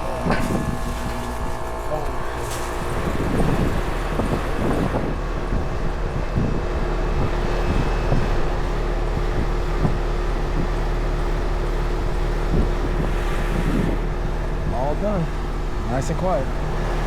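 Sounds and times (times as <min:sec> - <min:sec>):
air conditioning unit humming: 0:00.0 - 0:17.0
wind buffeting microphone: 0:00.0 - 0:17.0.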